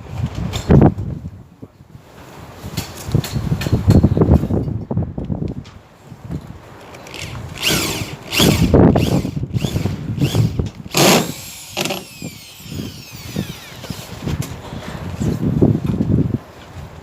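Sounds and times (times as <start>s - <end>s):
power drill whining: 7.0s - 14.4s.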